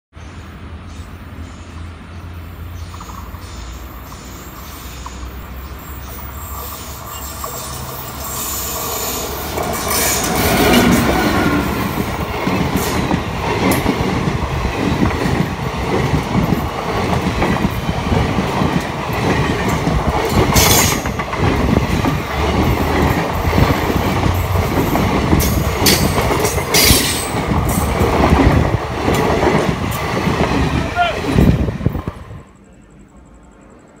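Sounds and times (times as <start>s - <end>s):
train passing close by: 0.2s - 34.0s
wheels squealing: 3.0s - 13.1s
coaches clattering over rail joints: 5.9s - 32.3s.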